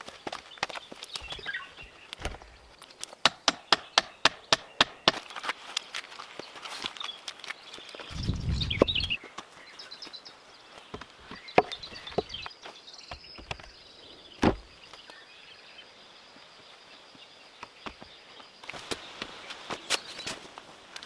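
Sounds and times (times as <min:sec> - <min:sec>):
knocks from wood and tools: 0:03.2 - 0:05.2
faint bird chirps: 0:07.0 - 0:10.7
low thud: 0:08.1 - 0:09.2.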